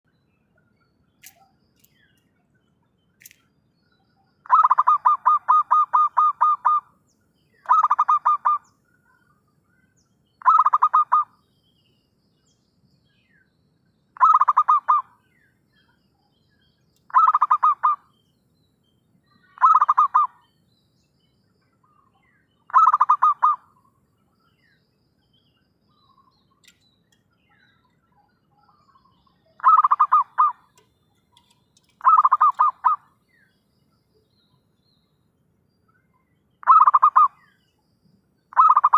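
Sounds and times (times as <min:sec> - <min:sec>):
dove cooing: 0:04.5 - 0:06.8, 0:07.7 - 0:08.6, 0:10.4 - 0:11.3, 0:14.2 - 0:15.1, 0:17.1 - 0:18.0, 0:19.6 - 0:20.3, 0:22.7 - 0:23.6, 0:29.6 - 0:30.6, 0:31.9 - 0:33.0, 0:36.6 - 0:37.4, 0:38.6 - 0:38.9.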